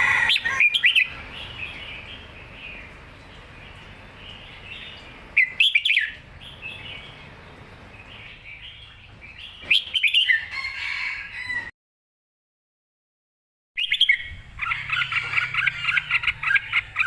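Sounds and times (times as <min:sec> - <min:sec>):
soft bird chirps: 0:00.0 - 0:10.5
bird whistled phrases: 0:13.8 - 0:17.0.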